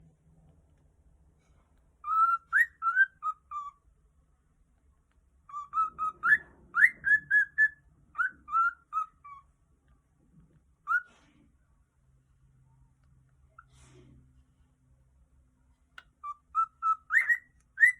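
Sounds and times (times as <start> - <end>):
cockatiel whistling: 2.0 - 3.8, 5.5 - 9.5, 10.9 - 11.2, 16.0 - 17.9.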